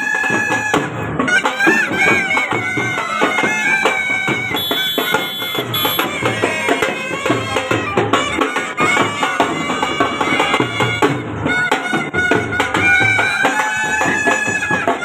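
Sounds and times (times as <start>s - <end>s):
reedy wind instrument melody: 0.0s - 15.0s
steady drum beat: 0.0s - 15.0s.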